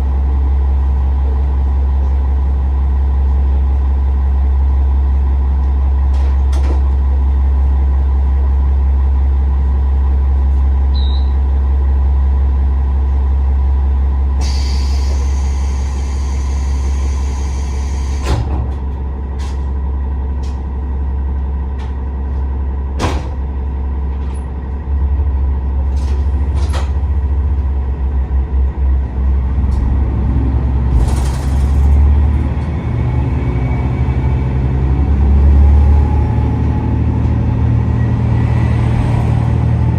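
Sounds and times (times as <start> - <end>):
low diesel engine drone: 0.0 - 39.9
compressed air hissing: 14.4 - 18.3.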